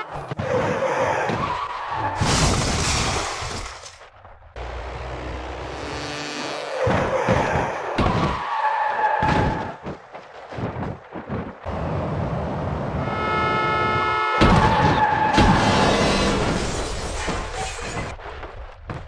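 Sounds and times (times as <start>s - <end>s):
crash impacts and thuds: 1.2s - 4.7s, 14.4s - 19.0s
car tyres squealing: 4.7s - 10.0s, 13.0s - 18.1s.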